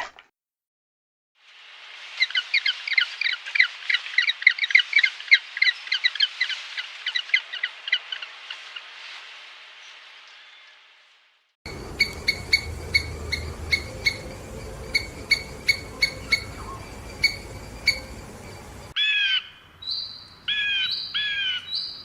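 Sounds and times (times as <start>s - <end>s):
steady hiss: 1.4s - 4.4s
bird chirping: 11.7s - 22.0s.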